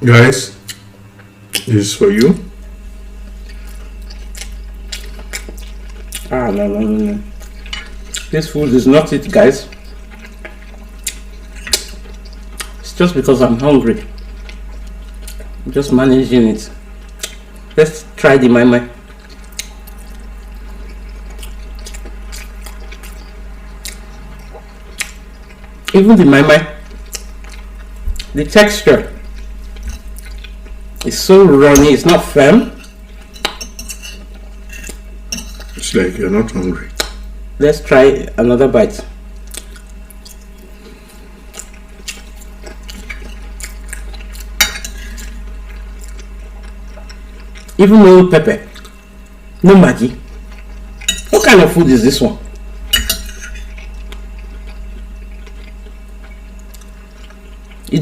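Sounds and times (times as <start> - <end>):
steady low hum: 0.0 - 58.0
chewing: 3.2 - 12.9, 13.9 - 15.7, 16.7 - 17.8, 18.9 - 26.0, 26.7 - 28.4, 29.0 - 33.6, 39.4 - 47.8, 48.7 - 49.6, 50.2 - 51.4, 53.3 - 58.0
wet mouth sounds eating: 3.3 - 8.6, 9.2 - 12.9, 19.0 - 26.0, 26.7 - 28.4, 39.4 - 47.8, 48.6 - 49.4.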